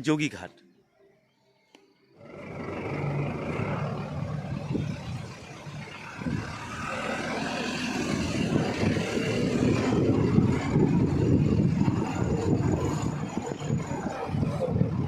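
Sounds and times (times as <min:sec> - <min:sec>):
vehicle engine and road rumble: 0:02.2 - 0:15.0.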